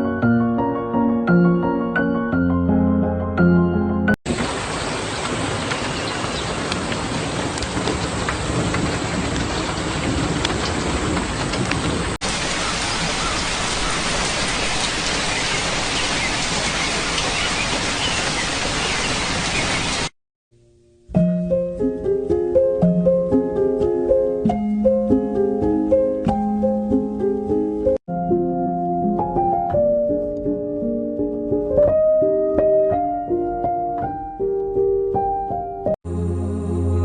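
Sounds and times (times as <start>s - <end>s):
soft piano-like music: 0.0s - 4.1s, 20.6s - 36.0s
steady rain: 4.3s - 20.1s.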